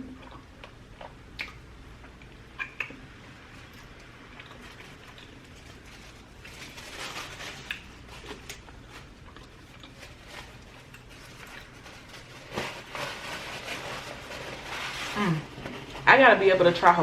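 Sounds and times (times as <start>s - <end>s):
chewing and mouth noises: 0.0s - 3.0s, 3.7s - 5.9s, 7.6s - 11.8s.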